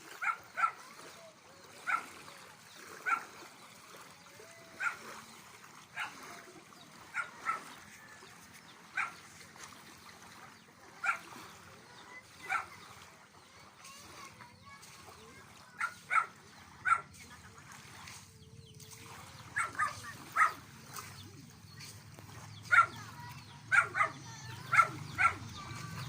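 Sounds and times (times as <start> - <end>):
dog barking: 0.1 - 1.0, 1.7 - 2.2, 3.0 - 3.4, 4.8 - 5.2, 6.0 - 6.3, 7.0 - 7.9, 8.8 - 9.3, 11.0 - 11.5, 12.3 - 12.9, 15.7 - 17.2, 19.5 - 21.0, 22.6 - 25.6.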